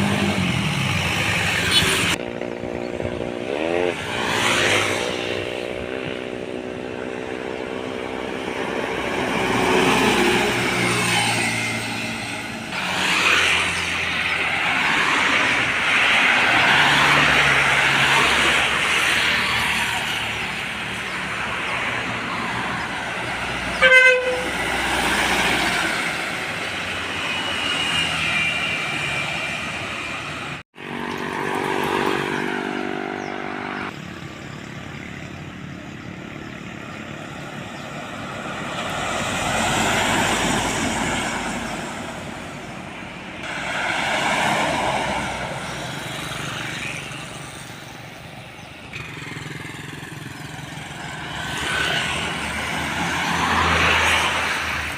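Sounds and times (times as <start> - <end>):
heavy traffic passing: 0.0 - 54.9
vehicle horn toot: 23.8 - 24.6.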